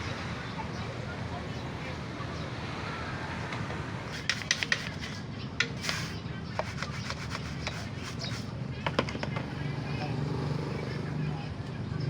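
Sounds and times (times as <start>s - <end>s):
rubbing: 4.1s - 8.5s.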